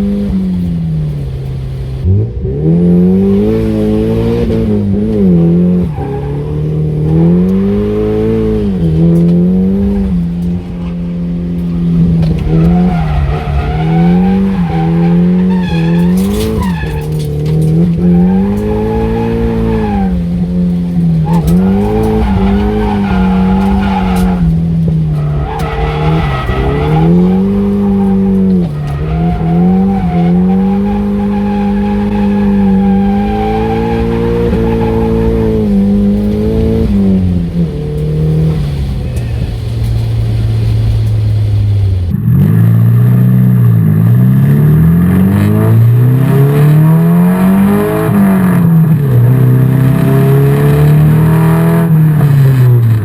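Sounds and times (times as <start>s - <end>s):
car engine revving: 0.0s - 53.0s
tyres squealing: 5.6s - 42.0s.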